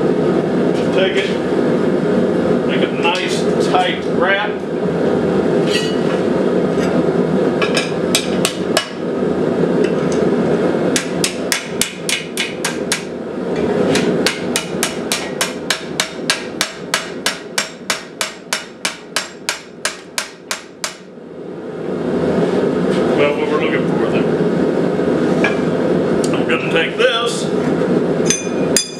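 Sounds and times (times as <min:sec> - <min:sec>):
forge burner roar: 0:00.0 - 0:28.9
hammer striking steel on anvil: 0:05.7 - 0:06.0, 0:11.0 - 0:13.1, 0:14.0 - 0:21.1, 0:28.3 - 0:28.9.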